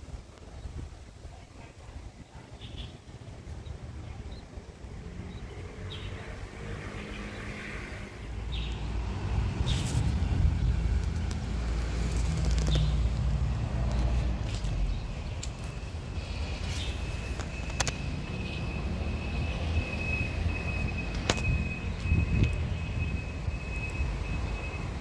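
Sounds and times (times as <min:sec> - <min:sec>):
birds chirping: 0:12.2 - 0:18.8.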